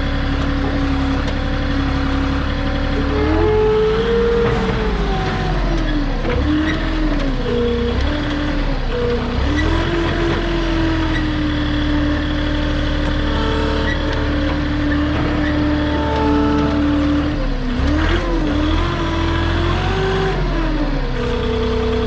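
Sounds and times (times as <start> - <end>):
forklift engine revving: 0.0 - 22.0.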